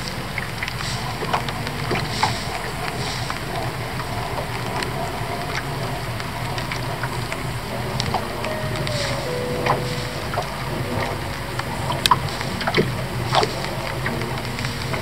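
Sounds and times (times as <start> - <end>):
raindrops ticking on a boat: 0.0 - 15.0
steady low rumble: 0.0 - 15.0.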